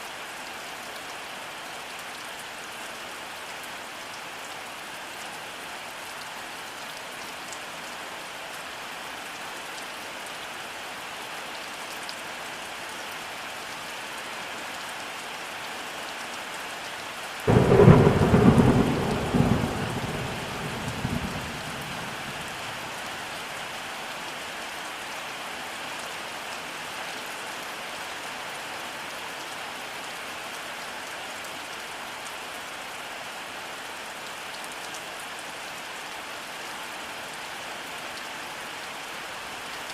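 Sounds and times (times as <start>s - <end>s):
thunder clap rumbling: 17.5s - 22.8s
rainfall hissing: 17.5s - 23.9s.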